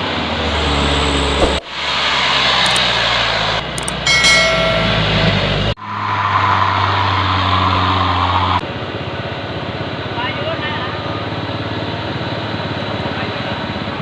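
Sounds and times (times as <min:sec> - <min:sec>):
short high tone: 0:04.0 - 0:05.6.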